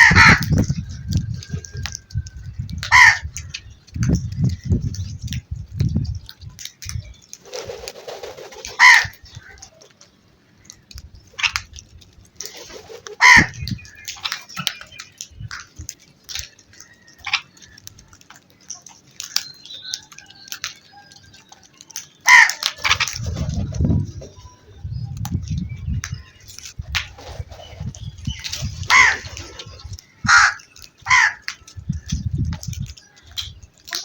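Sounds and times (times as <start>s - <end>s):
crows cawing: 0.0s - 0.5s, 2.9s - 3.2s, 8.7s - 9.8s, 13.2s - 14.0s, 22.2s - 22.8s, 28.9s - 29.3s, 30.1s - 31.7s.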